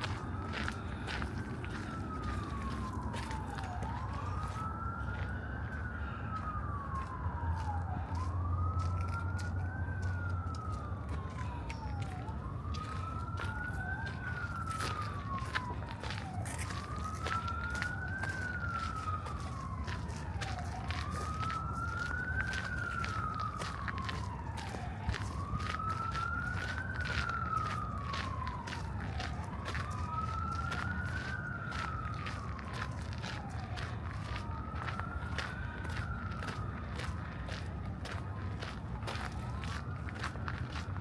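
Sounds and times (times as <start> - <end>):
emergency siren wailing: 0.0 - 41.0
footsteps on a path: 0.0 - 41.0.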